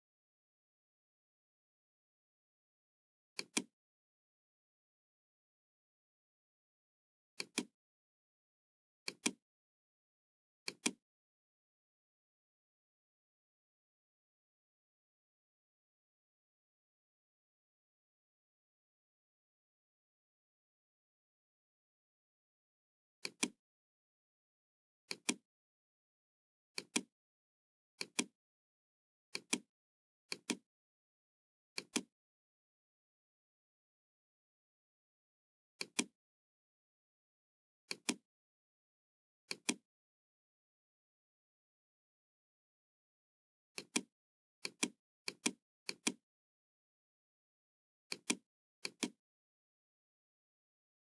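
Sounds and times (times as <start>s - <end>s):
computer mouse button clicks: 3.4s - 3.7s, 9.1s - 9.4s, 10.7s - 11.0s
computer mouse clicks: 3.4s - 3.7s, 7.4s - 7.7s, 9.1s - 9.4s, 10.7s - 11.0s, 23.2s - 23.6s, 25.1s - 25.4s, 26.8s - 27.1s, 28.0s - 28.3s, 30.3s - 30.6s, 31.8s - 32.1s, 35.8s - 36.1s, 37.9s - 38.2s, 39.5s - 39.8s, 43.8s - 46.2s, 48.1s - 49.2s.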